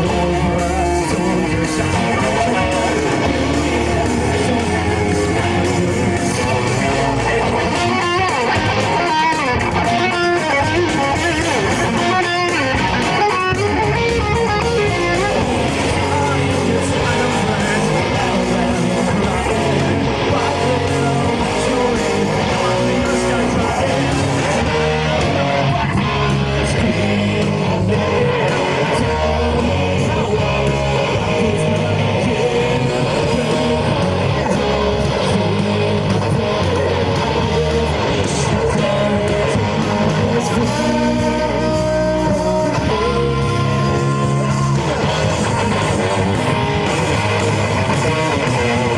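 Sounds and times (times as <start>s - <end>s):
bass guitar: 0.0s - 48.9s
electric guitars: 0.0s - 48.9s.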